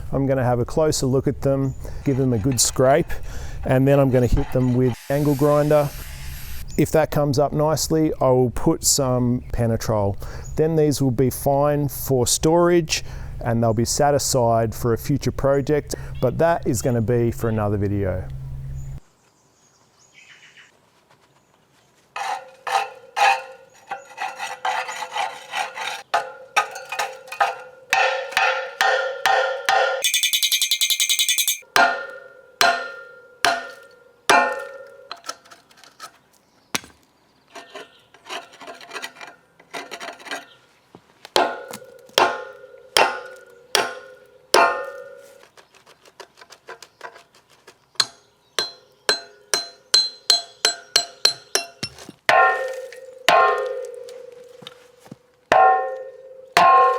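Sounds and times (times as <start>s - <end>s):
harsh scraping: 1.6s - 6.6s, 22.2s - 27.6s
hammer striking metal wheels: 1.9s - 5.5s, 26.0s - 35.3s, 41.4s - 45.5s, 48.0s - 54.8s, 55.5s - 56.9s.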